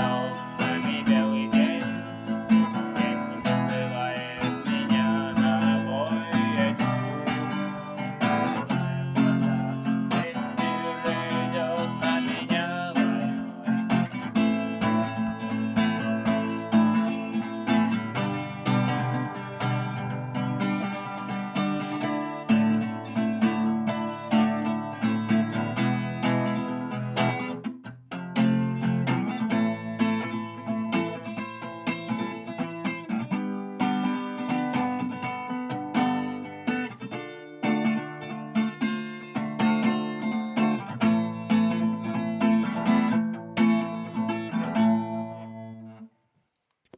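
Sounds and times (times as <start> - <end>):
acoustic guitar playing: 0.0 - 46.2.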